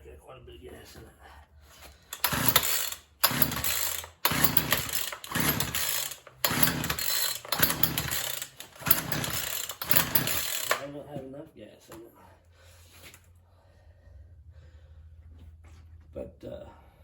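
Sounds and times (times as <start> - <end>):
chainsaw engine turning over: 2.1 - 11.0
chainsaw starter cord pulls: 2.1 - 11.0.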